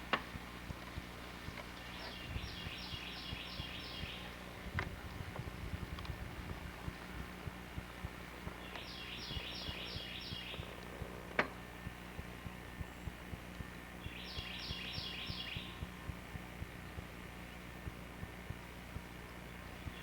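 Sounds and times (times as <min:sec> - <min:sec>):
faint low ticks: 0:00.0 - 0:20.0
songbird singing: 0:00.0 - 0:20.0.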